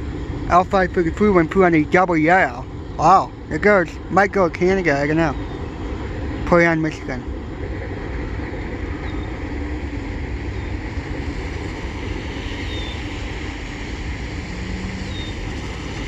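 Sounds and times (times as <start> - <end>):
freight train rumbling past: 0.0 - 16.0
wind noise on microphone: 7.1 - 16.0.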